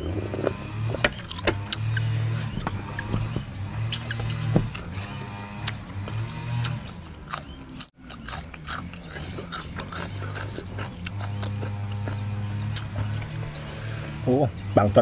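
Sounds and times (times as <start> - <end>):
crunching raw cucumber: 3.8 - 13.5.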